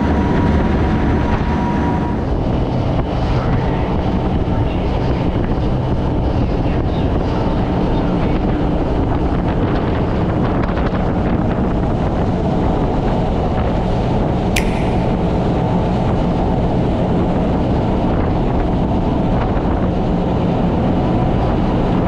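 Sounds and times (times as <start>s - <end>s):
wind: 14.6s - 22.0s.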